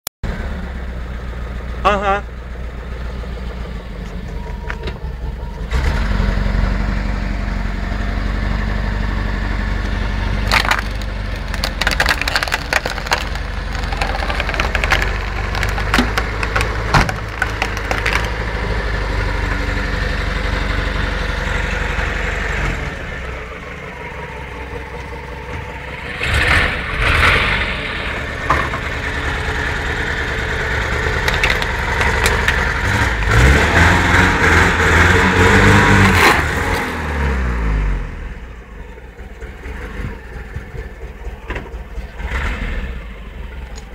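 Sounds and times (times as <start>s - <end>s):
car engine revving: 3.2s - 43.9s
plastic cracking under tyre: 10.4s - 19.0s, 31.1s - 33.4s.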